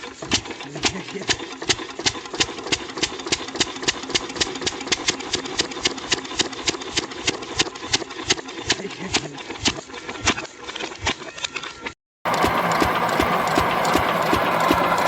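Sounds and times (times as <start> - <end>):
single-cylinder engine knocking: 0.1 - 8.8, 12.3 - 15.0.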